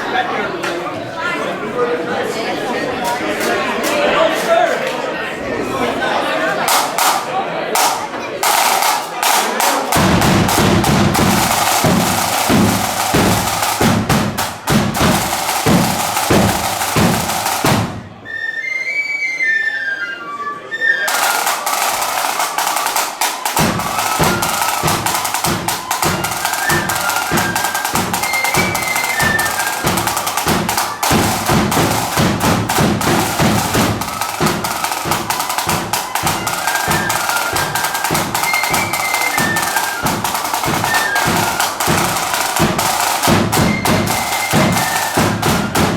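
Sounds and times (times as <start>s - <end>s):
drums beating march rhythm: 6.6s - 18.2s, 21.1s - 45.9s
marching band playing: 6.7s - 18.3s, 21.0s - 45.9s
flute melody: 15.0s - 45.9s.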